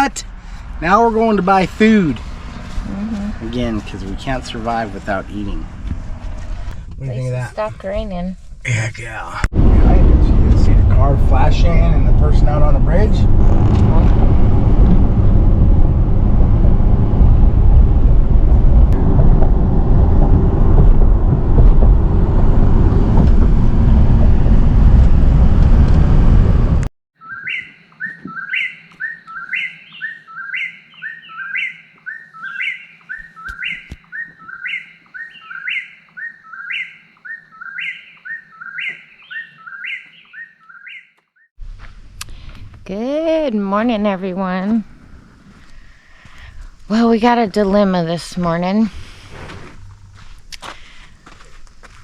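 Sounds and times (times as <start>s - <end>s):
road and engine noise in car: 0.0s - 26.9s, 41.6s - 52.0s
songbird chirping: 27.2s - 41.6s.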